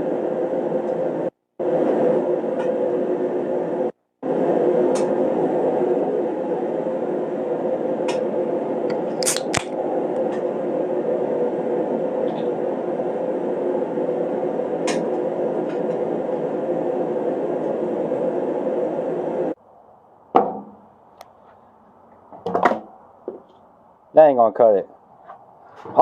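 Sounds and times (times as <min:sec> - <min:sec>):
heater fan whirring: 0:00.0 - 0:19.6.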